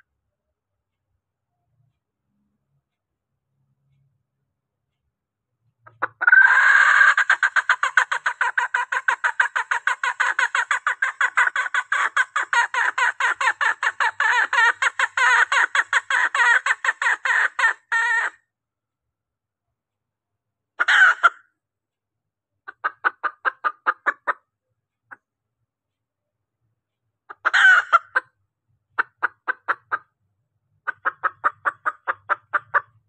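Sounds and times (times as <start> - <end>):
hen clucking: 5.9 - 18.4, 20.8 - 21.4, 22.7 - 24.5, 27.3 - 28.3, 29.0 - 30.1, 30.9 - 33.0.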